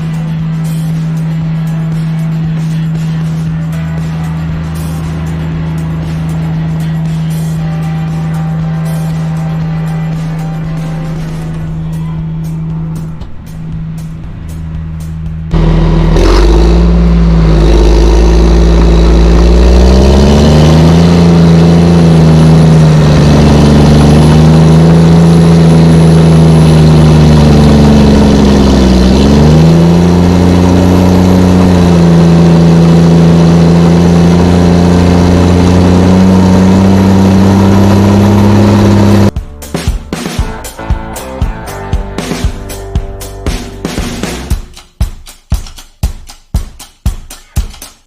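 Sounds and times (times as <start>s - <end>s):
bulldozer diesel engine running: 0.0s - 44.8s.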